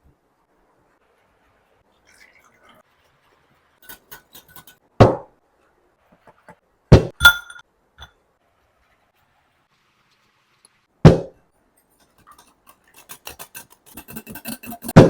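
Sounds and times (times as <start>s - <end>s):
kitchenware knocking: 7.0s - 7.6s
kitchenware clicks: 7.1s - 7.6s
glassy clink: 7.2s - 7.6s.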